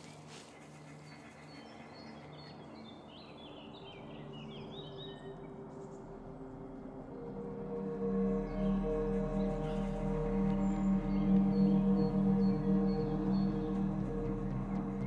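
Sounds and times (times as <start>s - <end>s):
low steady tones: 4.7s - 15.0s.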